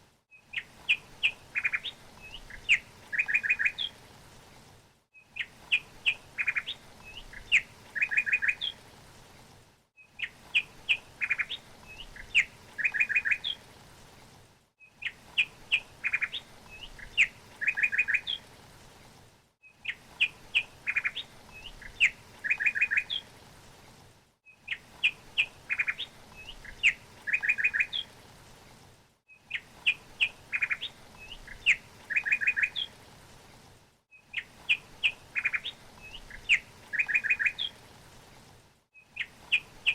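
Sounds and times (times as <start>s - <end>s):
faint steady hiss: 0.0s - 39.9s
songbird chirping: 0.3s - 4.0s, 5.2s - 8.8s, 10.0s - 13.6s, 14.8s - 18.5s, 19.6s - 23.3s, 24.5s - 28.1s, 29.3s - 33.0s, 34.1s - 37.8s, 39.0s - 39.9s.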